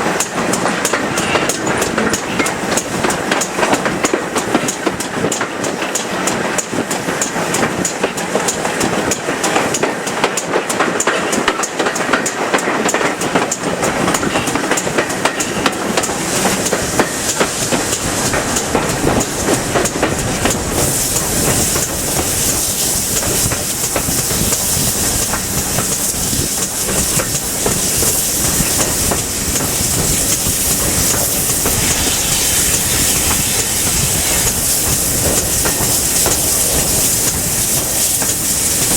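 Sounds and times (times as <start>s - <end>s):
steam locomotive beats: 0.0s - 38.9s
train wheel clatter: 0.0s - 38.9s
loud steam hiss: 12.3s - 38.9s.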